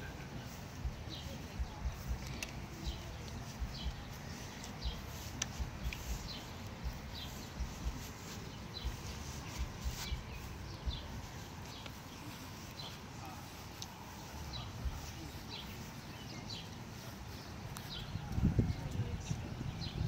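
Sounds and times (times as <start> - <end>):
small birds chirping: 0.0 - 20.0
low thumps on microphone: 4.8 - 8.2.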